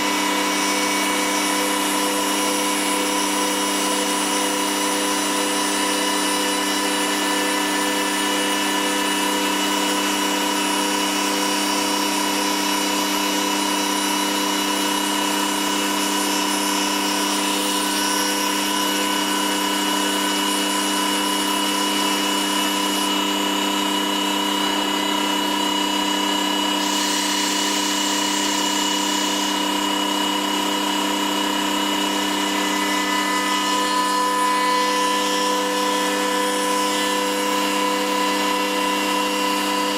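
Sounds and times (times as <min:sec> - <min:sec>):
cnc spindle whine: 0:00.0 - 0:39.9
cutter hissing through wood: 0:00.0 - 0:39.9.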